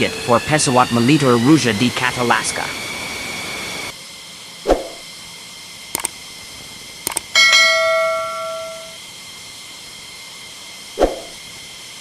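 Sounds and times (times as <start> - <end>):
sharp clicks: 6.0 - 6.2, 7.0 - 7.3
bell-like chime: 7.4 - 9.0.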